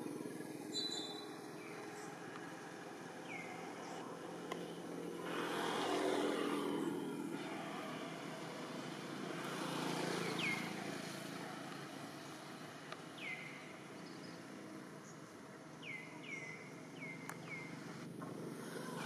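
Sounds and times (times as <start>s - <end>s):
distant engine hum: 0.0s - 19.0s
bird chirps dropping in pitch: 0.7s - 1.3s.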